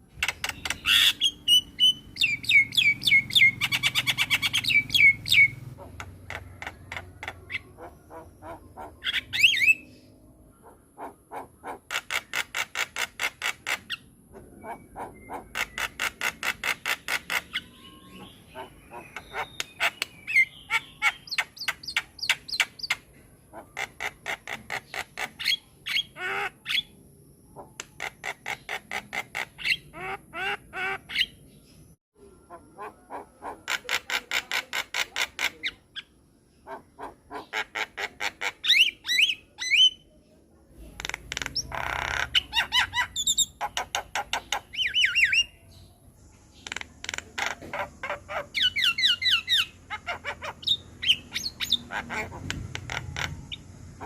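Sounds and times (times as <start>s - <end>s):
bird ticking rattling song: 0.0s - 10.0s, 14.7s - 23.1s, 40.9s - 54.0s
bird harsh squawks: 0.2s - 10.0s, 10.6s - 26.9s, 32.5s - 40.0s, 46.6s - 54.0s.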